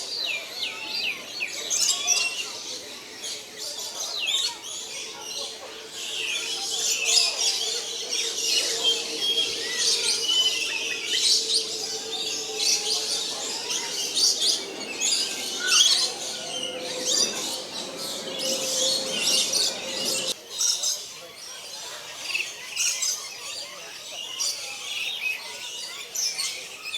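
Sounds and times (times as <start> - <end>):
birds chirping: 0.0 - 20.4.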